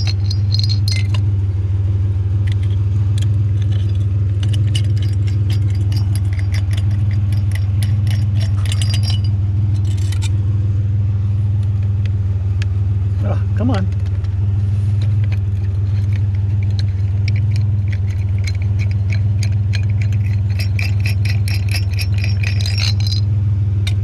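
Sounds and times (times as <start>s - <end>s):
glass and metal clinking: 0.0s - 1.2s, 2.5s - 10.3s, 15.6s - 23.3s
truck engine idling: 0.0s - 24.0s.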